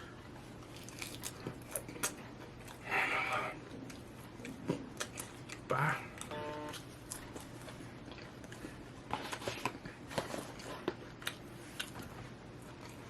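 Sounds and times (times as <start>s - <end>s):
crunchy clicks of breading: 0.6s - 2.8s
person biting and chewing: 0.6s - 2.8s.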